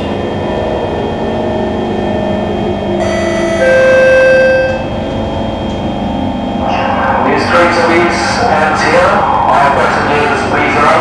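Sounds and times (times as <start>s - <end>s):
train traction motors whining: 0.0s - 11.0s
loud held tone: 2.9s - 6.6s.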